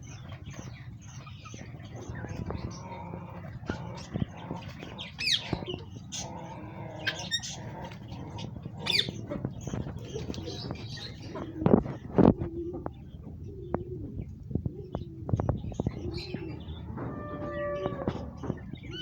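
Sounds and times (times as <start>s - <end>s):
poultry clucking and calling: 0.0s - 19.0s.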